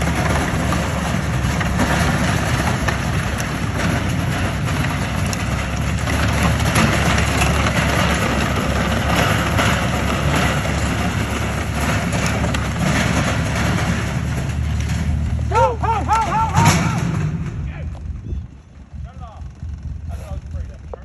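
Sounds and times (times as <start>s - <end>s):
small vehicle engine running: 0.0s - 21.0s.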